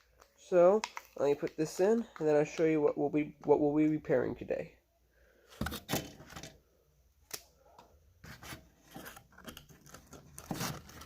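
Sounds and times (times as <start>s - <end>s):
package crinkling: 0.0s - 2.2s.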